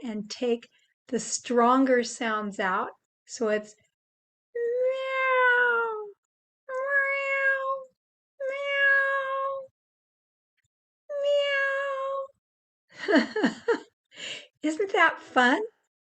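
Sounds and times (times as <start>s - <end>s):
woman imitating cat meows: 4.6s - 9.7s, 11.1s - 12.3s.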